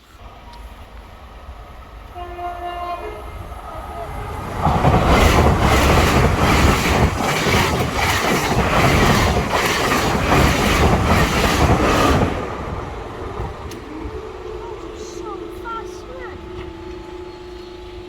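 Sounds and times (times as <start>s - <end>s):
train wheels clattering on rails: 4.5s - 13.9s.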